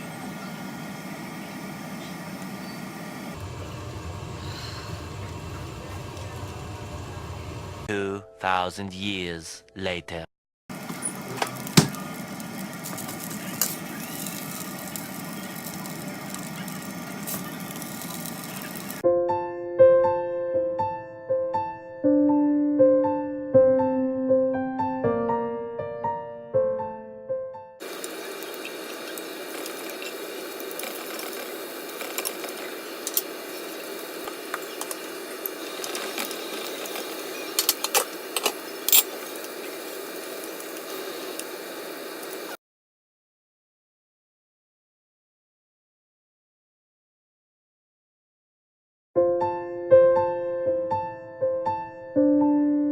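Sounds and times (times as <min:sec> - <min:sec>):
kitchen hum and hiss: 0:00.0 - 0:07.9, 0:10.7 - 0:19.0, 0:27.8 - 0:42.6
soft electric piano music: 0:19.0 - 0:27.8, 0:49.2 - 0:52.9
kitchen clicks and clatters: 0:28.0 - 0:39.8.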